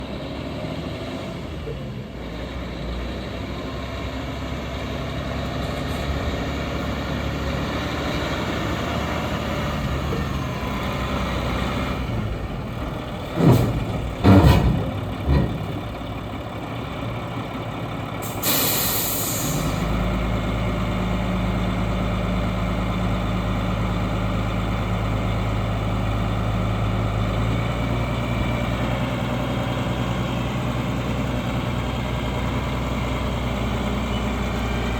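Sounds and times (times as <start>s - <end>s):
diesel truck engine: 0.0s - 34.9s
loud knocks: 13.4s - 15.9s
air brake hiss: 18.2s - 19.9s.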